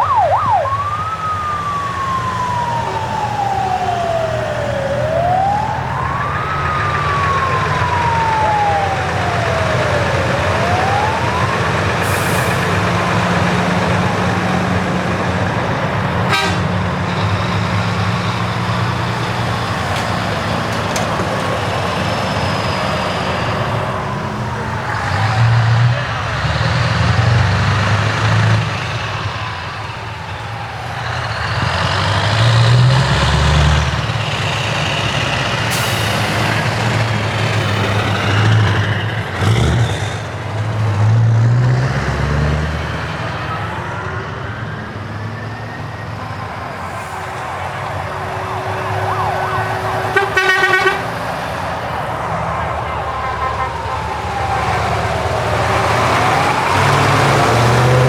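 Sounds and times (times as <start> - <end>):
sliding siren tones: 0.0 - 39.3, 42.0 - 58.0
truck diesel engines revving: 0.0 - 58.0
pulsing truck horn blast: 5.0 - 19.0, 46.8 - 58.0.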